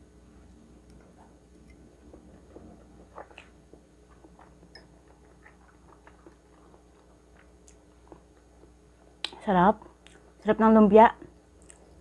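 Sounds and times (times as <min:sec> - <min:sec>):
chewing with mouth clicks: 0:03.0 - 0:10.4, 0:11.6 - 0:12.0.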